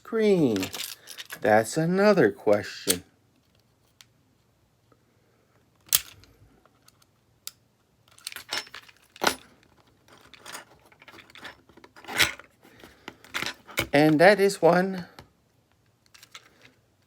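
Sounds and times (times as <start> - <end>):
small parts and tools clattering: 0.4 - 1.5, 8.0 - 14.2, 16.0 - 16.8.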